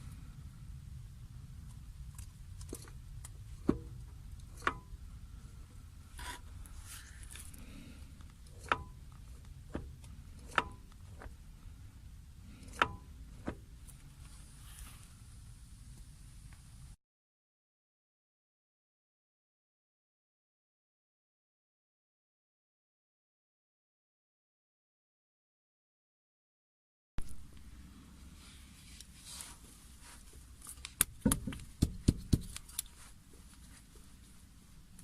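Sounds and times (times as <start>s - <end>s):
low steady rumble: 0.0s - 17.0s, 27.2s - 35.0s.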